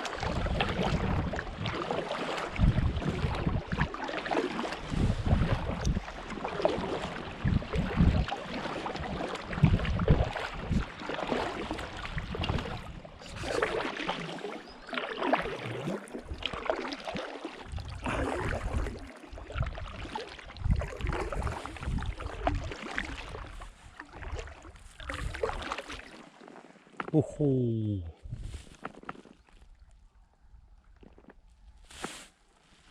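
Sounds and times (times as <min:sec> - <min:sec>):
paddles swishing through water: 0:00.0 - 0:32.9
wind gusting on microphone: 0:02.6 - 0:03.7, 0:04.8 - 0:06.2, 0:20.6 - 0:22.6, 0:28.2 - 0:28.7.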